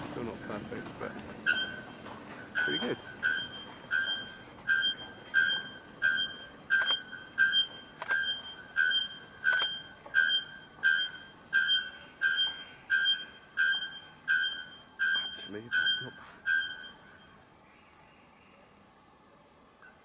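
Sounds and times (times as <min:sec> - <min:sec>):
bird calling metallic note: 0:01.4 - 0:17.4.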